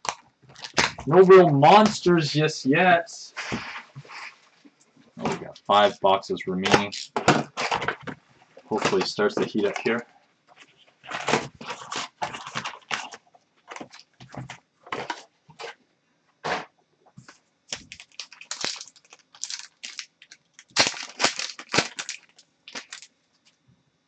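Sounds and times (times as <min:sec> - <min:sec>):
wrappers tearing and crinkling: 0:00.0 - 0:01.2, 0:10.6 - 0:15.8, 0:17.7 - 0:23.1
cards being handled: 0:08.6 - 0:10.0.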